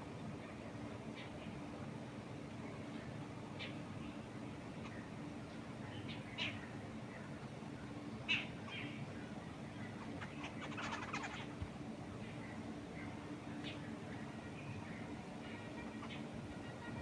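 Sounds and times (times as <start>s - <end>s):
low background rush: 0.0s - 17.0s
birds chirping: 8.3s - 11.6s.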